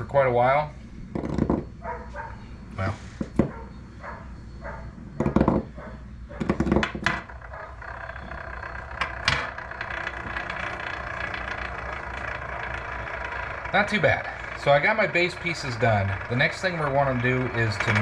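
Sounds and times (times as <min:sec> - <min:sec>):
mechanical whirring hum: 0:00.0 - 0:18.0
spinning tops clattering on a workbench: 0:06.4 - 0:18.0.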